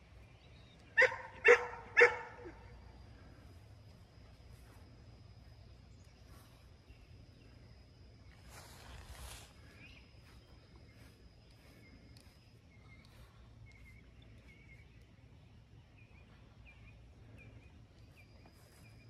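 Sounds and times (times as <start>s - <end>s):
faint small bird chirps: 8.4s - 19.0s.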